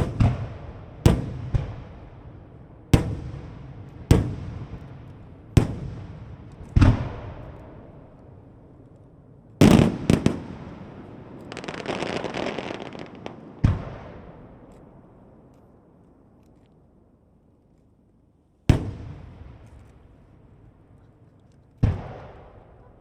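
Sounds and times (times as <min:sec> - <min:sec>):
firework shells booming: 0:00.0 - 0:08.2, 0:09.6 - 0:15.0
firework stars crackling: 0:09.6 - 0:15.6.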